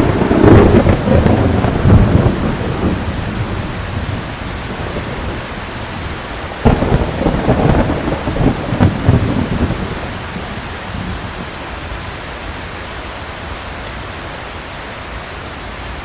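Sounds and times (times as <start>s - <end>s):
thunder rumbling: 0.0s - 12.6s
heavy rain: 0.0s - 16.0s.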